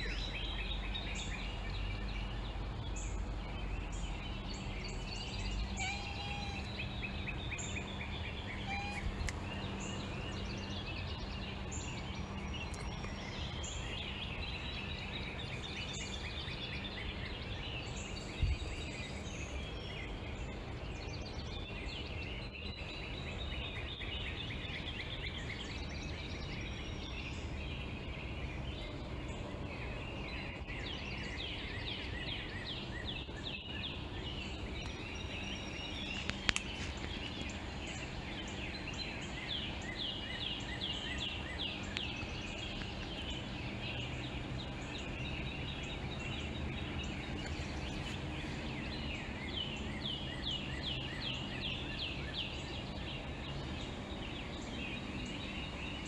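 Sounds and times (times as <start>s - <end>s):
songbirds chirping and trilling: 0.0s - 56.0s
steady low hum: 0.0s - 56.0s.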